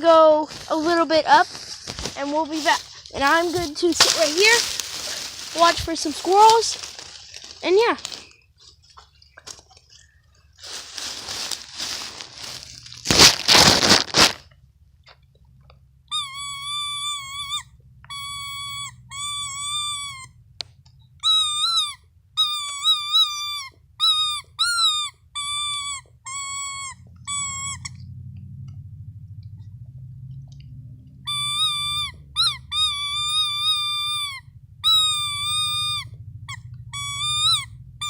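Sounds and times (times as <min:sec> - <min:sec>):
loud rustling crunch: 0:00.4 - 0:14.5
person giving high woo calls: 0:02.2 - 0:07.0, 0:16.2 - 0:20.3, 0:21.2 - 0:27.9, 0:31.3 - 0:36.1, 0:37.0 - 0:37.7.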